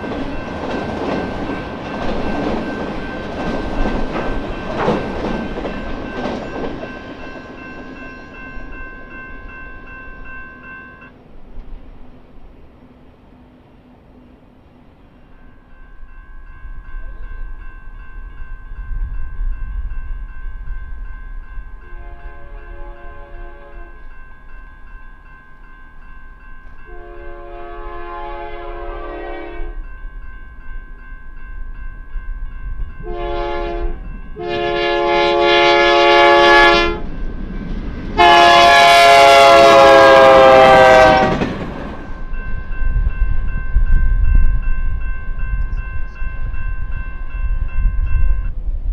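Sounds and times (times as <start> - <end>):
low train rumble: 0.0 - 48.9
locomotive air horn blasts: 21.8 - 24.1, 26.9 - 29.9, 33.0 - 37.1, 38.2 - 41.5.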